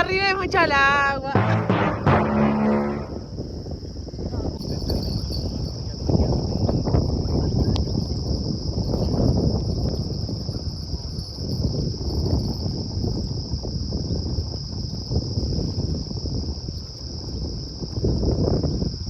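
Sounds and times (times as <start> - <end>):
low rumble: 1.4 - 3.4
insects trilling: 4.3 - 19.0.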